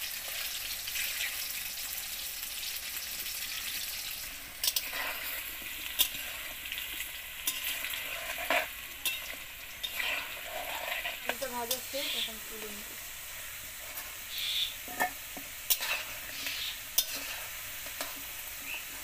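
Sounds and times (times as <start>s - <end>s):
potatoes sizzling in oil: 0.0s - 19.0s
metal spatula scraping a pan: 4.2s - 12.7s, 13.3s - 19.0s.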